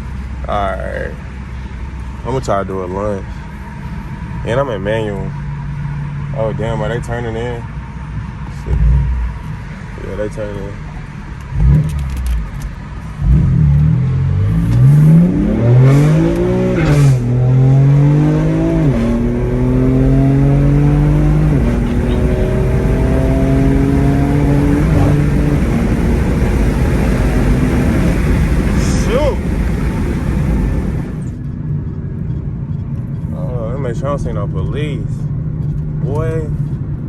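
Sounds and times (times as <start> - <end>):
car engine accelerating through gears: 8.6 - 9.9, 11.0 - 31.4.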